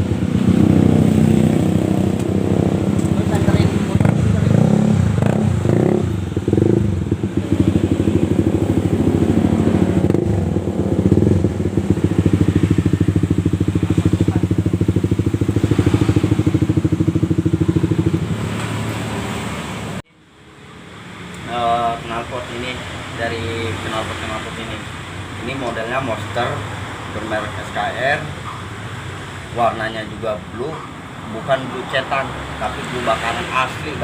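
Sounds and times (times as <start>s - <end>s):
motorcycle engine revving and idling: 0.0s - 34.0s.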